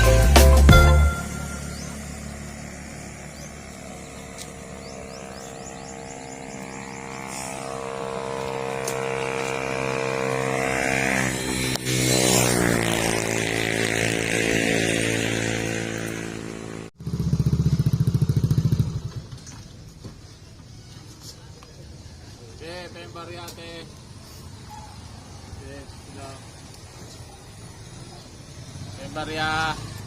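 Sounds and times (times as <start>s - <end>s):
motorcycle engine accelerating: 0.7s - 19.8s, 27.8s - 30.0s
rapidly pulsing engine: 1.3s - 19.1s.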